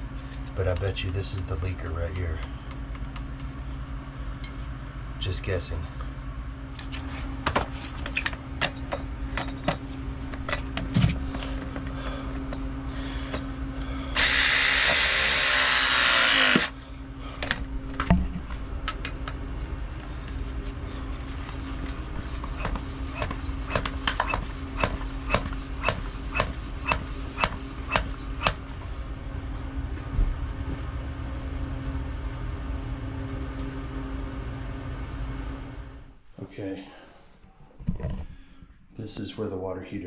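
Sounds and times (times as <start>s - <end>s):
steady low hum: 0.0s - 40.0s
power tool whining: 14.1s - 16.8s.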